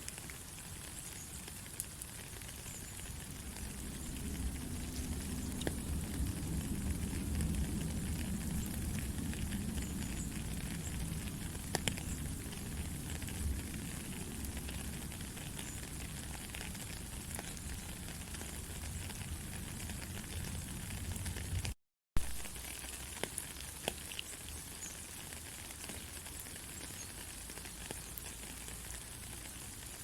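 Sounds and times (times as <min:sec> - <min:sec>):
steady rain hiss: 0:00.0 - 0:30.0
low rumble: 0:03.3 - 0:15.2.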